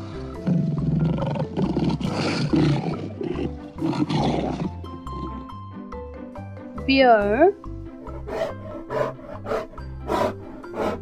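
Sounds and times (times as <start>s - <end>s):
background music: 0.0s - 11.0s
lion roaring: 0.1s - 5.5s, 8.0s - 11.0s.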